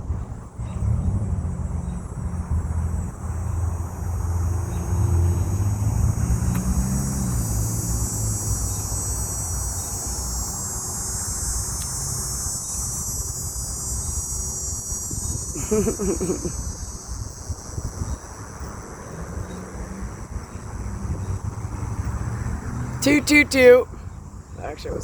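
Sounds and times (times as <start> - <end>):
low engine rumble: 0.0 - 10.4
steady high hiss: 3.2 - 18.8.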